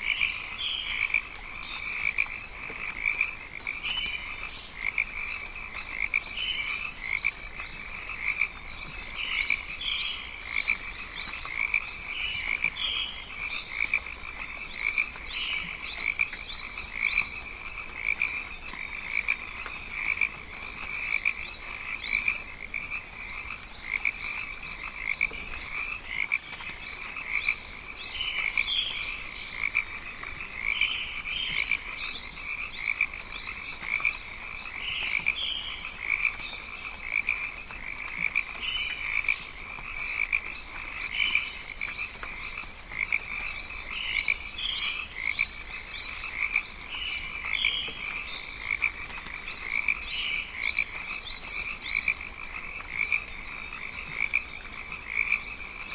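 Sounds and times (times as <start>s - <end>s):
frogs calling in chorus: 0.0s - 55.9s.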